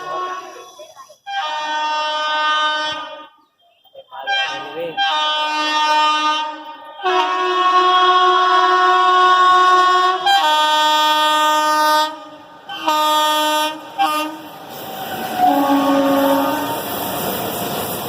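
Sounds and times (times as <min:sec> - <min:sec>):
locomotive horn blasts: 0:01.3 - 0:03.4, 0:04.2 - 0:14.5, 0:15.4 - 0:16.8.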